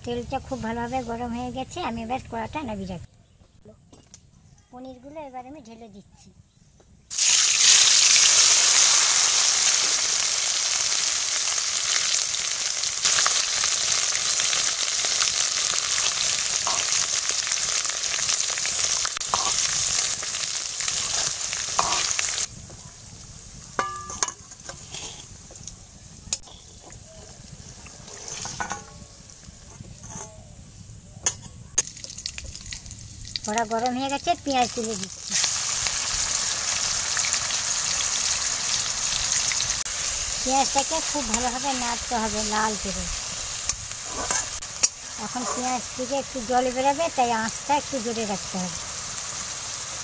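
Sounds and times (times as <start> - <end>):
food sizzling in hot oil: 7.1 - 29.6, 31.8 - 50.0
metal spatula stirring: 19.2 - 20.0, 20.9 - 22.3, 23.8 - 25.3, 28.0 - 29.0, 44.1 - 45.8
metal clinks and scrapes: 28.0 - 30.4.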